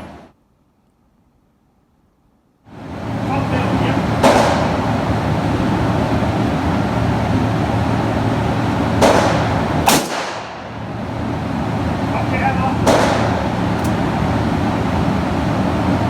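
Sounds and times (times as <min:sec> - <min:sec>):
steady background hum: 0:00.0 - 0:16.0
handgun shots: 0:04.2 - 0:04.9, 0:09.0 - 0:10.7, 0:12.8 - 0:14.0.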